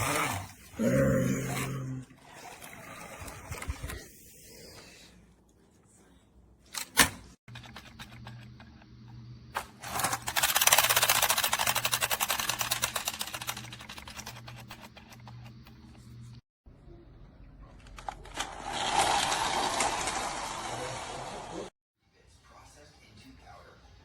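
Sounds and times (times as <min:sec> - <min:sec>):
toy wind-up gear clicking: 0:10.3 - 0:14.2.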